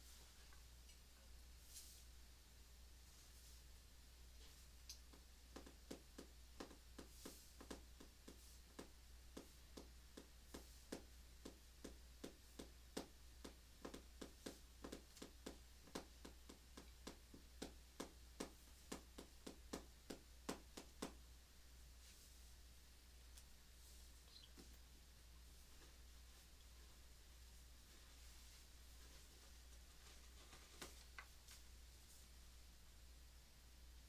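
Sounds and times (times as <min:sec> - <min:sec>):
pencil tapping on paper: 0:05.1 - 0:21.2.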